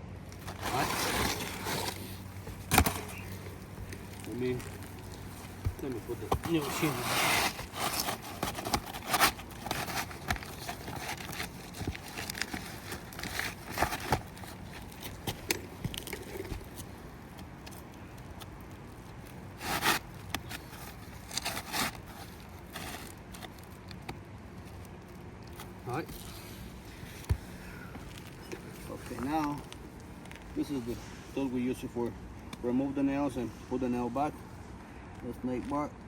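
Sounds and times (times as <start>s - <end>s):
roof shingle scraping: 0.2s - 23.8s.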